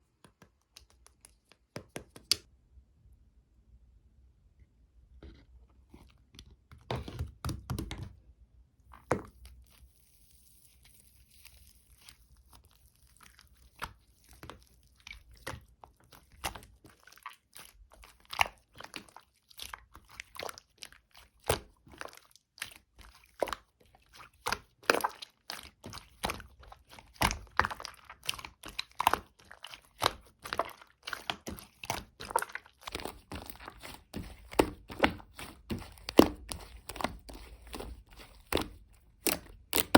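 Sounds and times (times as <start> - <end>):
slime squished by hand: 8.9 - 39.9.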